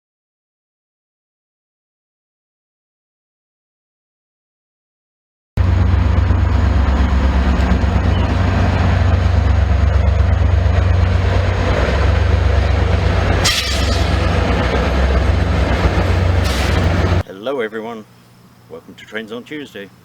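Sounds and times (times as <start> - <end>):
diesel locomotive engine drone: 5.6 - 17.2.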